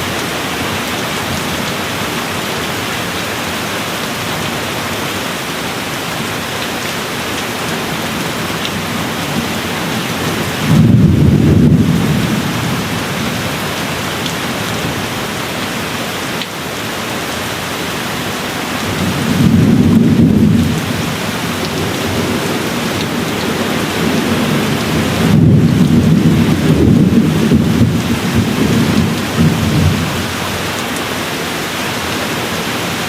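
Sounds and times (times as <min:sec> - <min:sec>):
steady rain hissing: 0:00.0 - 0:33.0
low gentle thunder rumbles: 0:07.9 - 0:15.6, 0:18.8 - 0:30.6.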